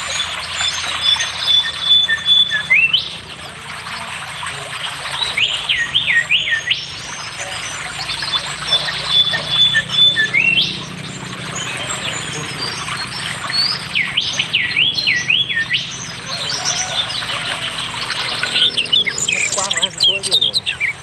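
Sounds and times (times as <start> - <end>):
background bird twittering: 0.0 - 21.0
songbirds singing: 0.0 - 21.0
bird whistles: 0.1 - 3.1, 7.5 - 10.9, 13.4 - 21.0.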